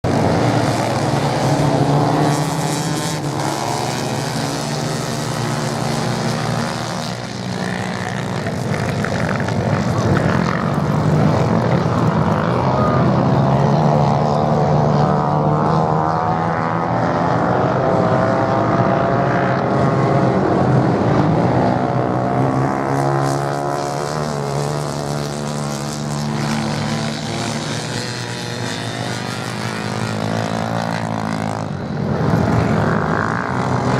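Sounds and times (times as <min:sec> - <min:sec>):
racing motorcycle engines revving: 0:00.0 - 0:33.9.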